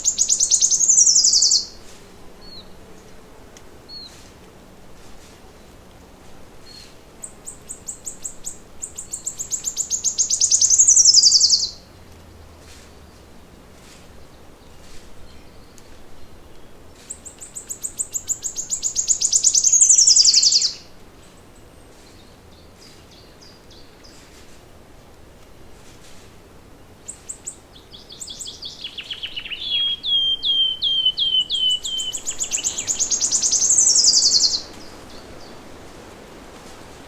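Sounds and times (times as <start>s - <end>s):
songbird high rapid trills: 0.0s - 2.6s, 6.7s - 11.8s, 17.2s - 20.8s, 27.1s - 37.0s.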